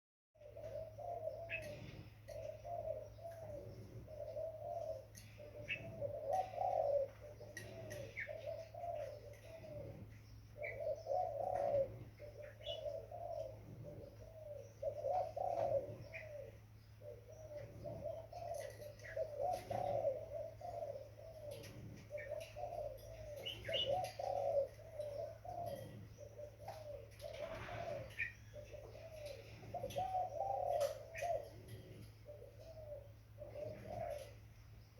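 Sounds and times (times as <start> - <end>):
dove cooing: 0.4 - 34.9.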